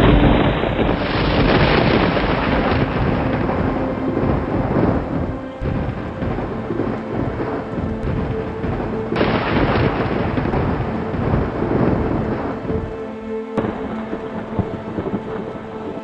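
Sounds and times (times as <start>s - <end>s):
rolling thunder: 0.0s - 16.0s
steady rain: 0.0s - 16.0s.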